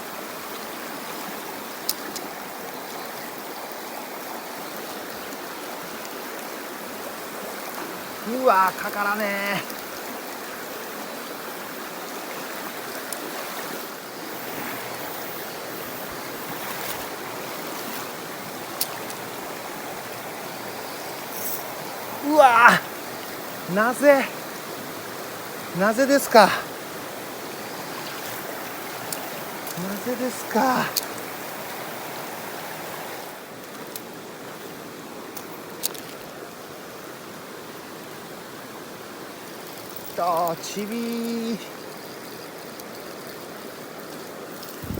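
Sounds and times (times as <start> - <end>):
stream water rushing: 0.0 - 44.9.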